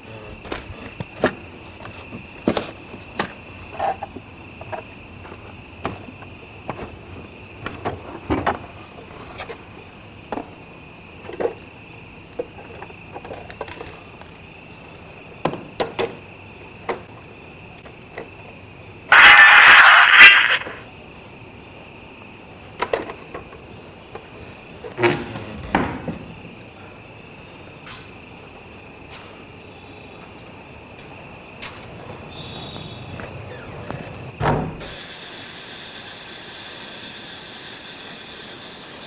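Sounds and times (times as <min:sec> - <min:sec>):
high-pitched insect chirring: 0:19.1 - 0:20.8
loud harsh burst: 0:19.1 - 0:20.8.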